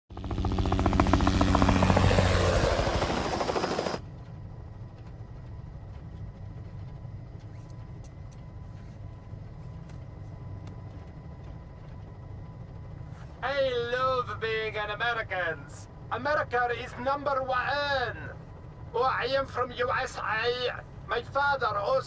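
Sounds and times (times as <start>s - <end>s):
helicopter rotor chopping: 0.1s - 8.6s.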